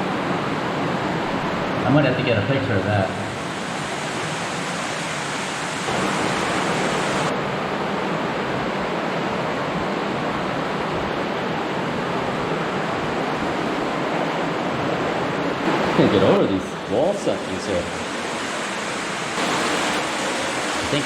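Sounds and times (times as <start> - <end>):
water rushing through tunnel: 2.7 - 7.4, 12.0 - 21.0.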